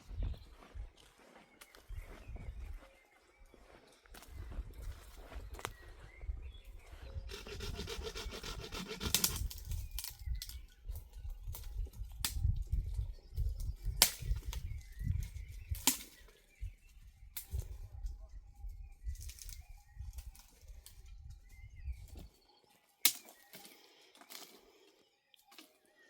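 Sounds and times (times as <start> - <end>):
branches rubbing and scraping: 7.1 - 10.6.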